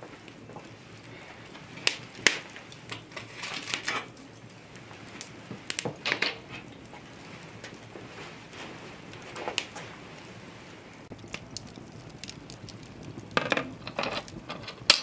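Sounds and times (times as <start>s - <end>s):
kitchenware clattering: 13.4s - 15.0s
kitchenware clinking: 13.4s - 15.0s.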